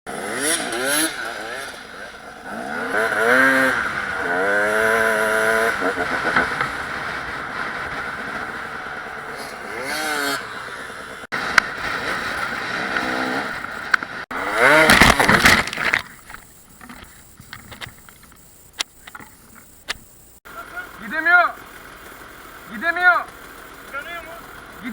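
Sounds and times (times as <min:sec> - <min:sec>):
dirt bike engines revving: 0:00.1 - 0:24.9
voices: 0:00.6 - 0:04.4, 0:14.8 - 0:24.9
scattered clicks: 0:14.9 - 0:20.4.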